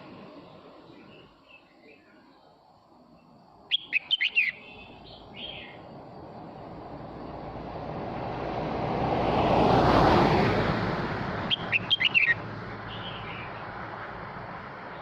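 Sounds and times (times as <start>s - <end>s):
bulbul singing sharp notes: 3.7s - 5.9s, 11.5s - 13.5s
broad rushing noise: 4.4s - 15.0s.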